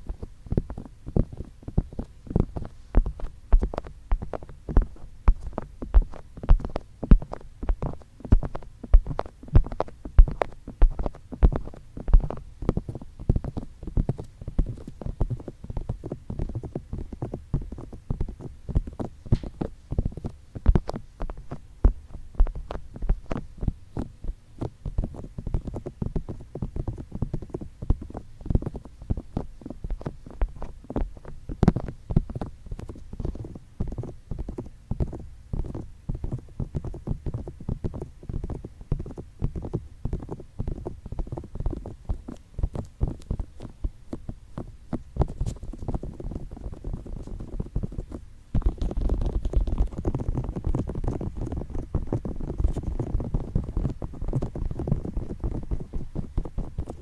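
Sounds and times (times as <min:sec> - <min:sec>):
fingertips tapping on microphone: 0:00.0 - 0:57.0.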